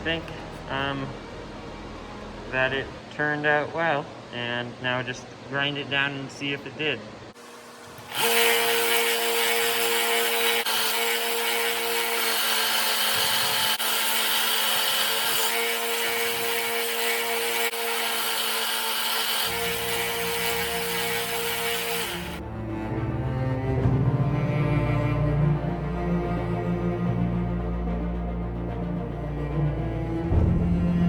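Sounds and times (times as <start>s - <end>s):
electric grinder grinding steel: 7.4s - 22.4s.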